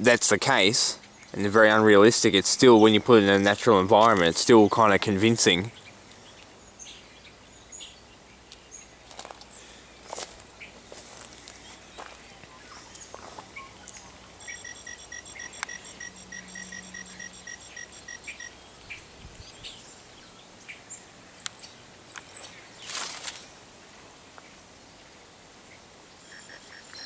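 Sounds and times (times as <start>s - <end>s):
artificial electronic chirping: 13.6s - 18.6s, 26.2s - 27.0s.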